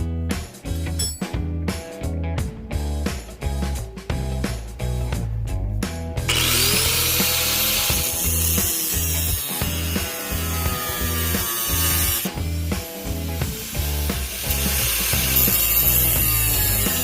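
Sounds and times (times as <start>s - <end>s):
background music: 0.0s - 17.0s
tool scraping harshly: 6.3s - 12.4s.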